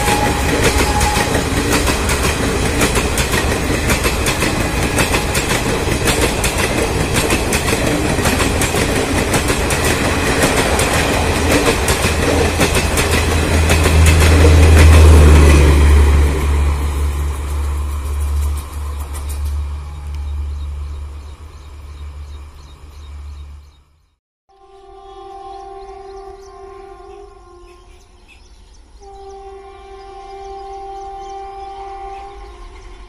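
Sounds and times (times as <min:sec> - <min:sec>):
train wheels clattering over rail joints: 0:00.0 - 0:15.7
train rushing noise: 0:00.0 - 0:22.4
low rumble of train coaches: 0:00.0 - 0:23.8, 0:24.6 - 0:33.0.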